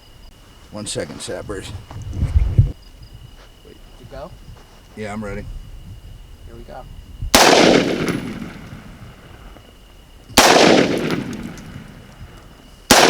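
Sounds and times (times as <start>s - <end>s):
shotgun blasts with echo: 7.3s - 9.5s, 10.4s - 13.0s.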